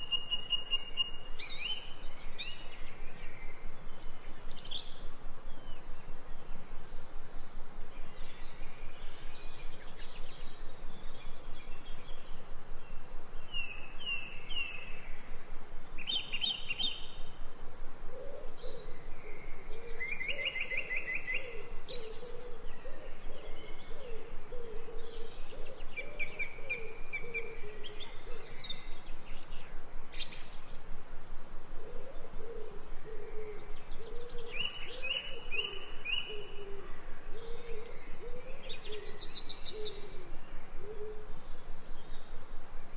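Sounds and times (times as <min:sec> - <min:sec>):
songbirds chirping and trilling: 0:00.0 - 0:42.9
low wavering bird call: 0:31.9 - 0:41.3.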